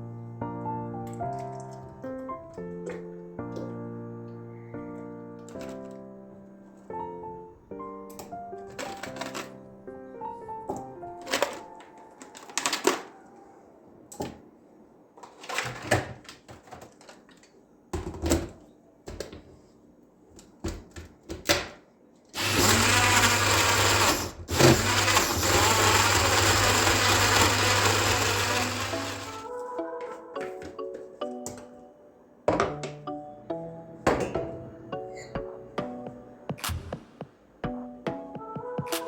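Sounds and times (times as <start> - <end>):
electric blender running: 22.4 - 29.4.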